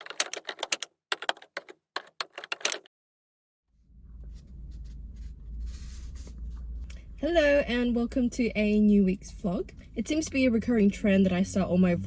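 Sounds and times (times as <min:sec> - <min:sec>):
typing on a keyboard: 0:00.0 - 0:02.9
low steady hum: 0:03.8 - 0:12.0.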